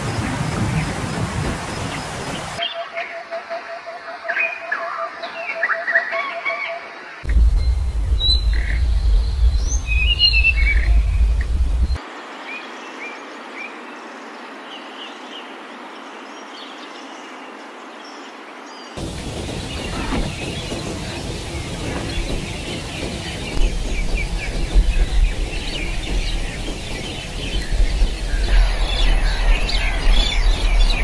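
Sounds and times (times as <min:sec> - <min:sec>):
steady outdoor hiss: 0:00.0 - 0:05.5, 0:06.8 - 0:31.0
low rumble: 0:07.3 - 0:12.0, 0:19.0 - 0:31.0
small birds chirping: 0:07.3 - 0:31.0.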